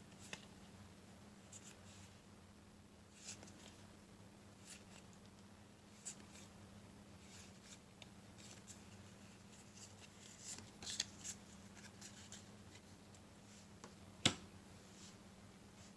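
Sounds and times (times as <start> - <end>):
cards rustling and sliding: 8.4 - 12.9.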